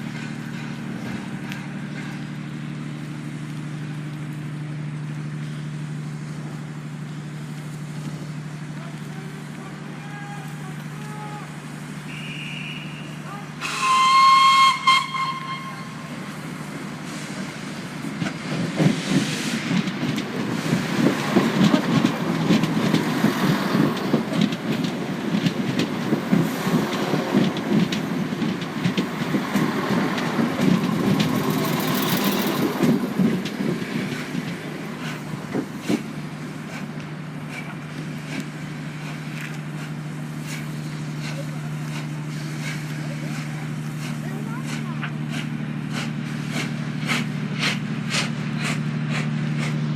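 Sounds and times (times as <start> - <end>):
train wheels clattering: 0.0 - 2.6, 17.2 - 49.9
train horn: 12.1 - 16.2.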